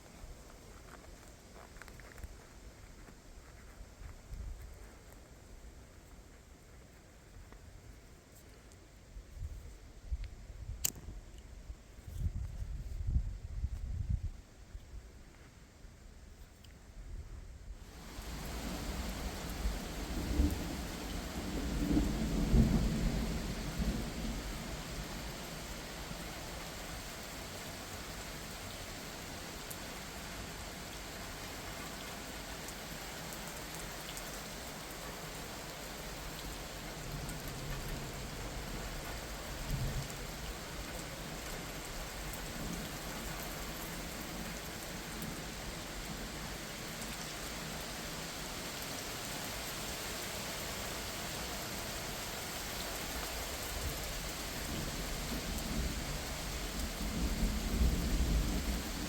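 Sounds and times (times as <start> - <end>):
steady rain falling: 17.6 - 59.0
thunder rumbling: 18.1 - 25.7, 54.5 - 59.0.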